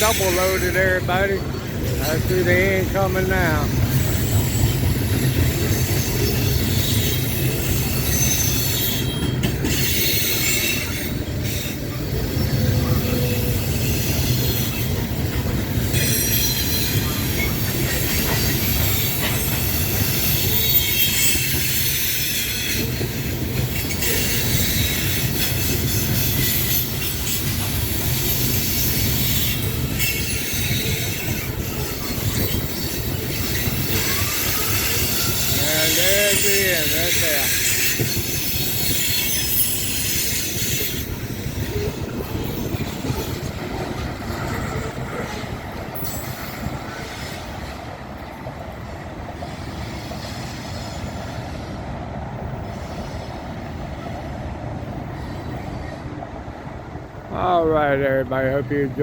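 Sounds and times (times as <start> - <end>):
train wheels rumbling on rails: 0.0 - 59.0
high-pitched wheel squeal: 4.0 - 15.0, 23.8 - 43.4.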